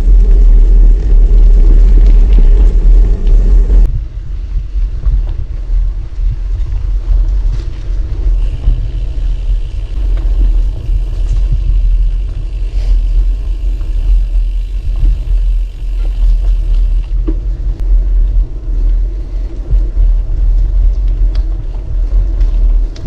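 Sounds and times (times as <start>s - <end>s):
wind buffeting microphone: 0.0s - 23.0s
tyres ticking on gravel: 6.1s - 17.9s.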